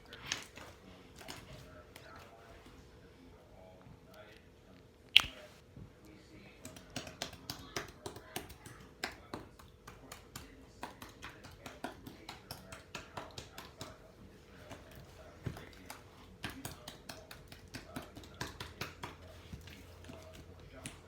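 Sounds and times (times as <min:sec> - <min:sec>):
slime squeezed clicking and popping: 0:05.1 - 0:05.4.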